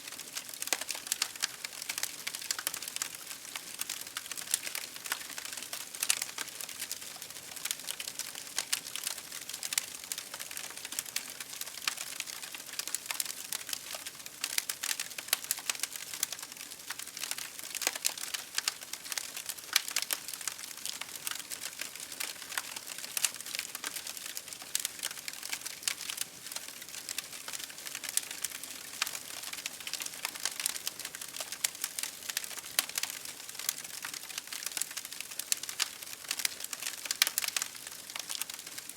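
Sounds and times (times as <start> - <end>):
campfire crackling: 23.6 - 38.9.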